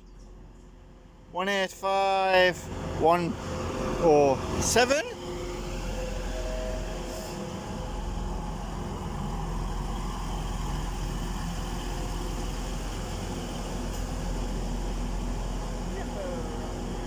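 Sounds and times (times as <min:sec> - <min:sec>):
diesel train engines idling: 0:00.0 - 0:17.0.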